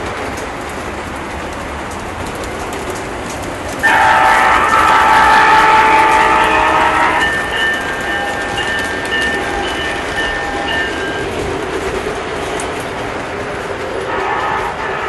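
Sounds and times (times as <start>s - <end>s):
model train horn: 3.8s - 7.9s, 14.0s - 15.0s.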